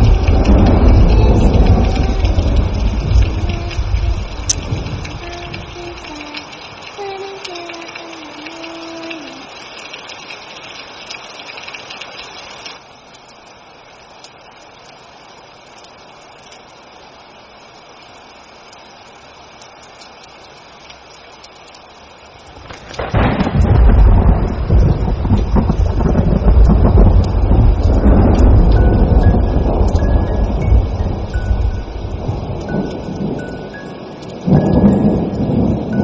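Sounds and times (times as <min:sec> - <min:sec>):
thunder crack and rumble: 0:00.0 - 0:06.4, 0:22.4 - 0:36.0
rain hiss: 0:00.0 - 0:36.0.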